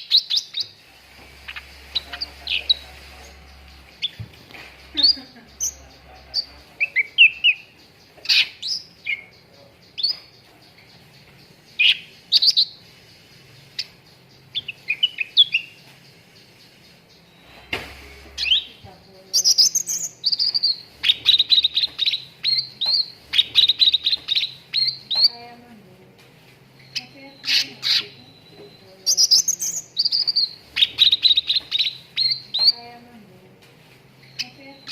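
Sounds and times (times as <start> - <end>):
songbird chirping and whistling: 0.0 - 25.6, 26.8 - 33.0, 34.2 - 34.9.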